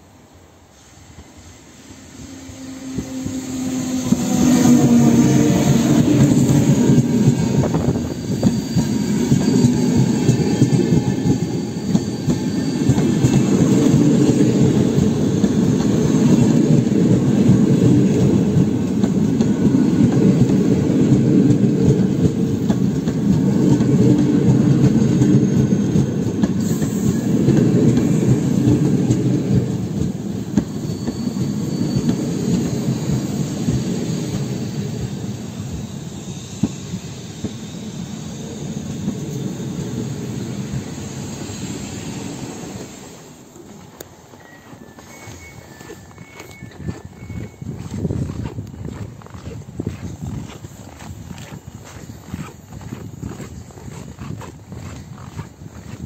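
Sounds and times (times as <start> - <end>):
train wheels rumbling on track: 0.0 - 56.0
faint high squeals: 0.7 - 16.2, 24.8 - 48.4.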